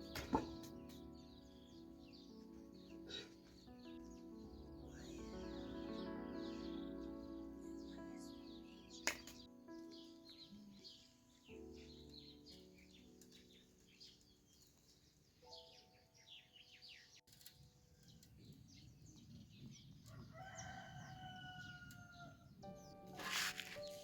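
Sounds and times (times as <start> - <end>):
soft background music: 0.0 - 17.1, 20.4 - 24.0
small birds chirping: 0.0 - 24.0
faint rooster crowing: 20.0 - 22.5.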